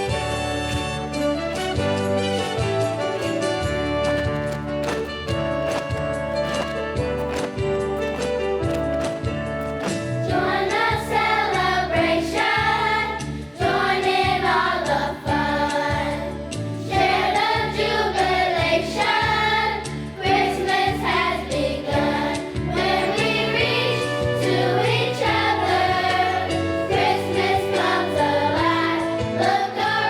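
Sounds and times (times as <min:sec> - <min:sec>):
instrumental accompaniment: 0:00.0 - 0:30.0
choir singing: 0:10.2 - 0:30.0.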